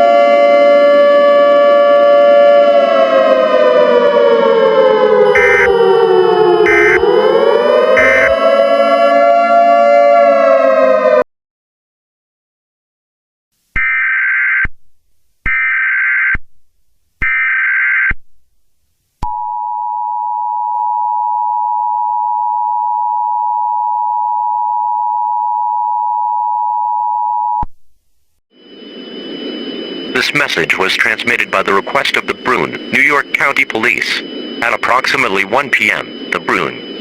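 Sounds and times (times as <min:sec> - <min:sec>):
steady dual-tone alert signal: 0:05.2 - 0:05.9, 0:06.6 - 0:09.2, 0:28.6 - 0:37.0
warbling digital data tones: 0:28.6 - 0:37.0.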